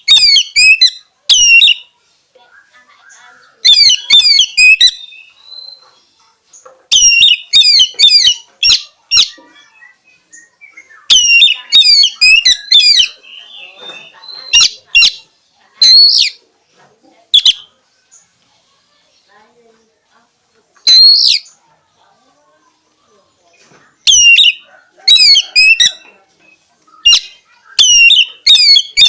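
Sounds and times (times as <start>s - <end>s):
bird singing sliding whistles: 20.9s - 21.5s.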